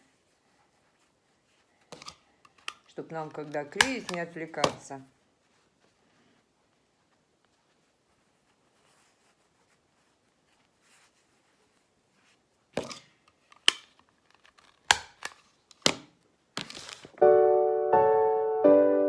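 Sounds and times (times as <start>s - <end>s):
rustle of cotton pads: 0.0s - 12.8s
hand stapler clicking: 3.7s - 4.8s, 12.8s - 16.1s
piano music: 17.2s - 19.0s.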